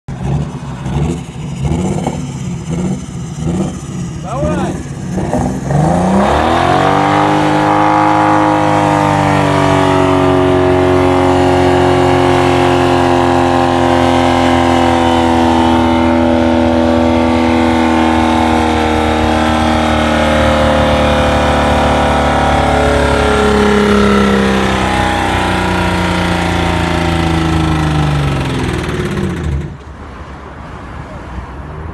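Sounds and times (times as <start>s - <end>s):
diesel engine revving very high: 0.1s - 29.8s.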